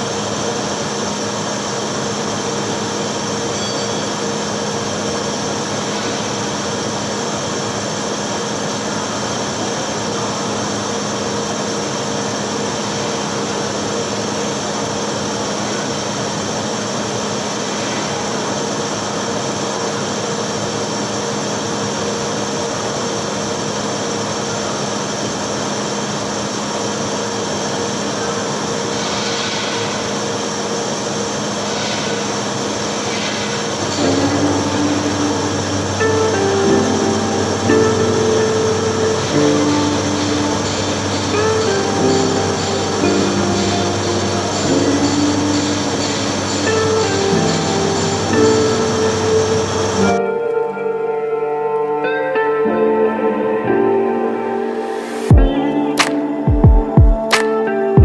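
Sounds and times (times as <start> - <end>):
welding arc hissing: 0.0 - 50.2
low hum: 31.6 - 50.2.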